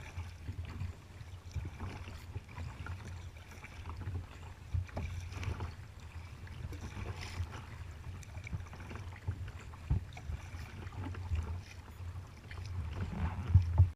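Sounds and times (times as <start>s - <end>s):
paddle splashing water: 0.0s - 13.9s.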